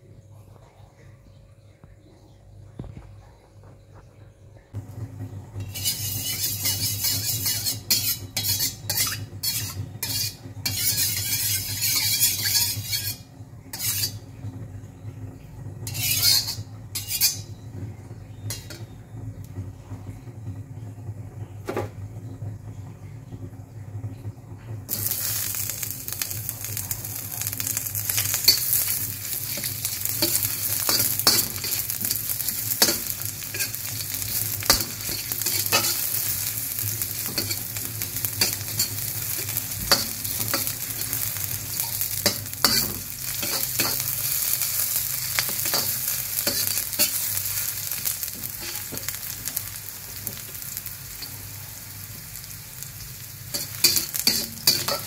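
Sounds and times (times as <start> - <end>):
onion sizzling in hot oil: 4.7 - 19.7, 24.9 - 55.0
metal spatula scraping a wok: 5.6 - 14.3, 15.8 - 17.6, 18.5 - 18.9, 24.9 - 52.5, 53.5 - 55.0.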